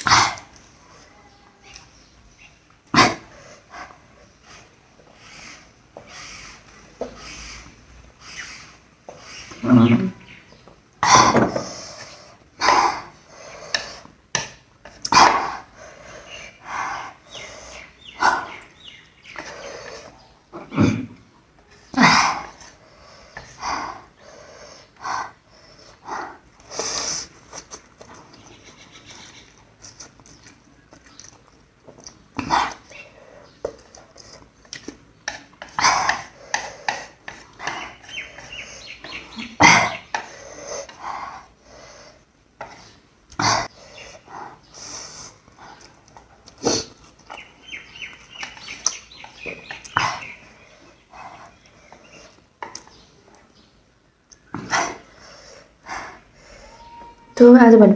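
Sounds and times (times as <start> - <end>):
chewing: 22.5 - 55.7.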